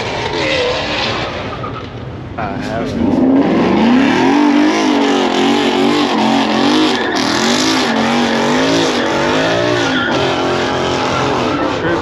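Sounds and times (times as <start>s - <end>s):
car engine revving hard: 2.6s - 12.0s.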